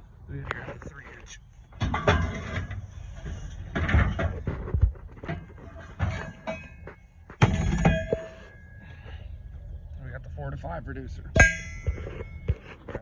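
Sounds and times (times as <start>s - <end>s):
metal fittings clanking: 1.8s - 4.4s, 5.2s - 8.7s
loud metallic clang: 6.0s - 8.8s.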